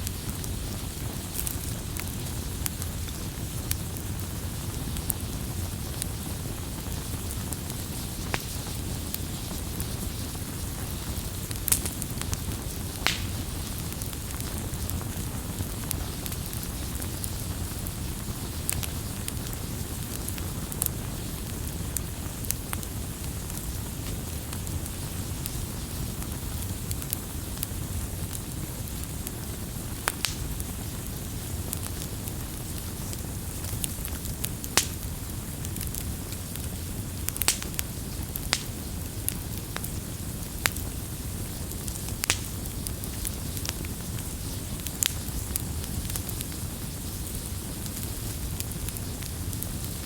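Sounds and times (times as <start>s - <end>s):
campfire crackling and popping: 0.0s - 50.0s.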